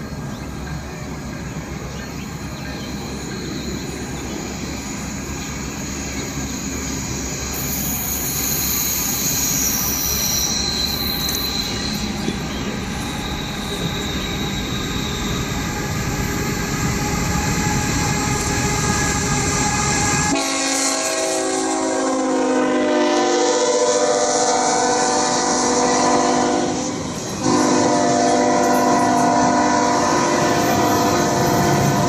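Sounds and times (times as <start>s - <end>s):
train wheels rumbling on rail: 0.0s - 32.0s
locomotive air horn blast: 18.7s - 32.0s.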